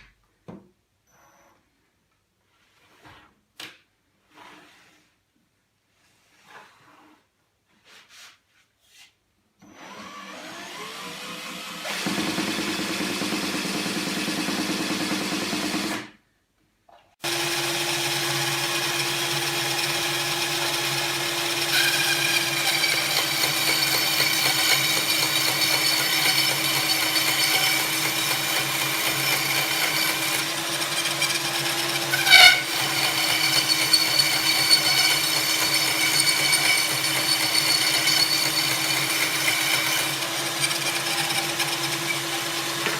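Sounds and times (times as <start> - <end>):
electric drill motor whine: 9.6 - 16.1, 17.2 - 42.9.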